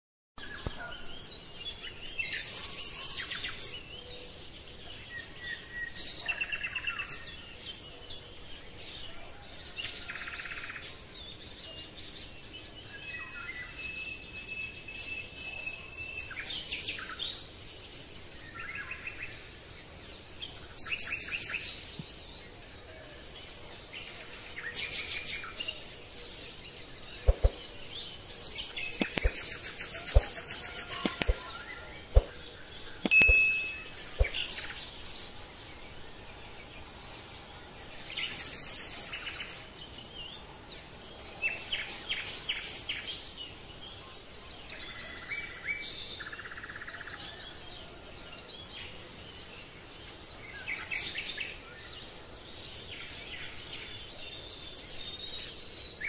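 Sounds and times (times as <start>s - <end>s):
birds chirping and trilling: 0.4s - 56.0s
sharp clicks: 29.0s - 29.4s.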